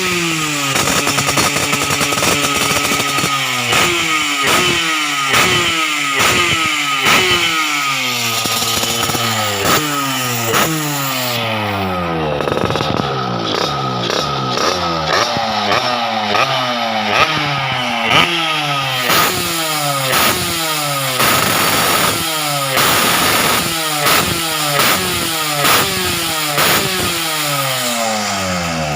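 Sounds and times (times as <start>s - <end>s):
motorcycle engine revving: 0.0s - 28.9s.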